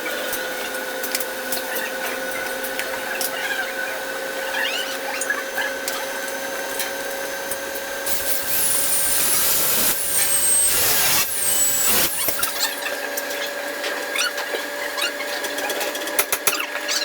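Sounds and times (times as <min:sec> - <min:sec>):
hiss with falling whistle: 0:08.1 - 0:12.7.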